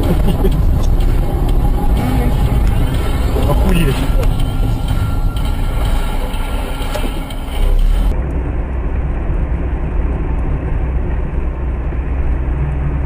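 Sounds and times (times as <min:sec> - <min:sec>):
car driving rumble: 0:00.0 - 0:13.0.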